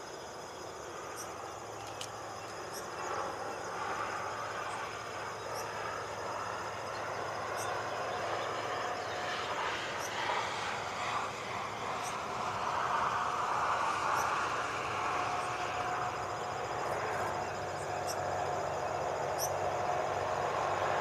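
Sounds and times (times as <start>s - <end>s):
distant traffic noise: 0.0s - 21.0s.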